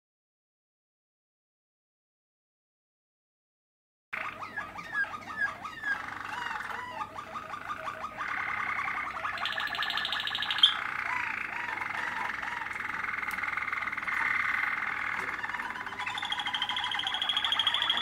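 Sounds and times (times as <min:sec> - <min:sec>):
canary singing trills: 0:04.2 - 0:18.0.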